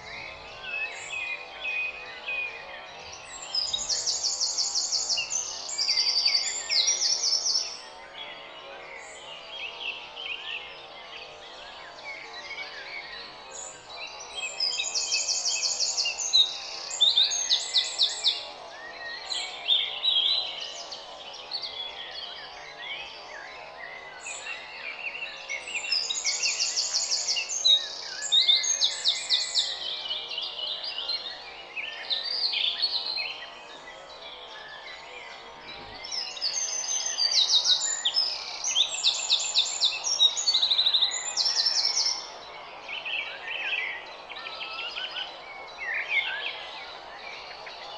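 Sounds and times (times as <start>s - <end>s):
songbird trilling and chirping: 24.2s - 47.9s.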